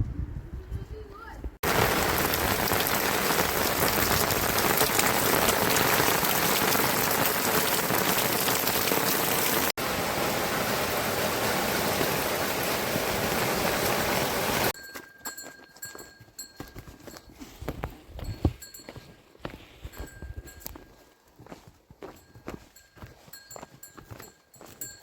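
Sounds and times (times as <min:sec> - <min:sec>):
heavy rain pattering: 0:01.6 - 0:14.8.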